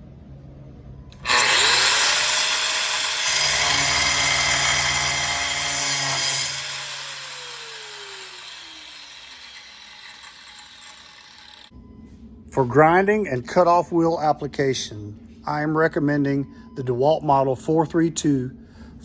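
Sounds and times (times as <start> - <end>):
angle grinder whining: 1.1 - 11.7
grinder cutting with harsh hiss: 1.1 - 11.7.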